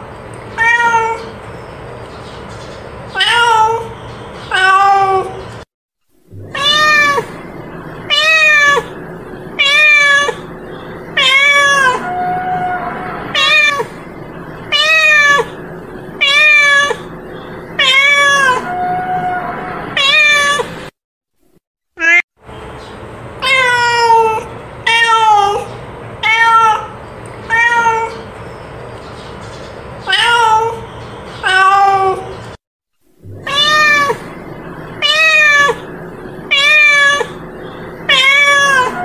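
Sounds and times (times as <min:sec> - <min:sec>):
cat meowing: 0:00.6 - 0:01.3, 0:03.2 - 0:03.9, 0:04.5 - 0:05.4, 0:06.4 - 0:07.3, 0:08.1 - 0:09.0, 0:09.6 - 0:10.5, 0:11.1 - 0:14.0, 0:14.6 - 0:15.6, 0:16.2 - 0:17.1, 0:17.8 - 0:20.7, 0:22.0 - 0:22.2, 0:23.4 - 0:28.2, 0:30.0 - 0:30.8, 0:31.4 - 0:32.3, 0:33.3 - 0:34.4, 0:35.0 - 0:35.9, 0:36.5 - 0:37.4, 0:38.0 - 0:39.0.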